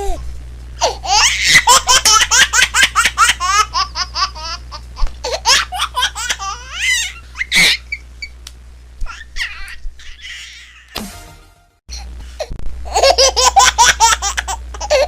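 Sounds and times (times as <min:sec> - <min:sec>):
baby laughing: 0:00.8 - 0:08.0, 0:09.0 - 0:10.9, 0:12.9 - 0:15.0.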